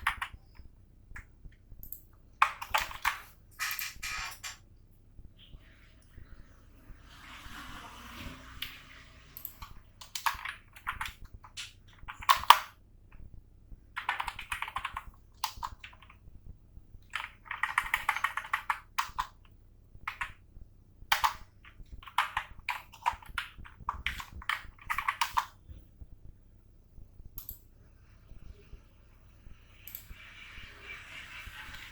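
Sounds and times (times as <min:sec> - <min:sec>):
computer keyboard typing: 0:00.0 - 0:04.6, 0:09.4 - 0:13.2, 0:13.9 - 0:16.3, 0:17.0 - 0:20.4, 0:21.1 - 0:25.7, 0:27.4 - 0:27.6, 0:29.8 - 0:31.9.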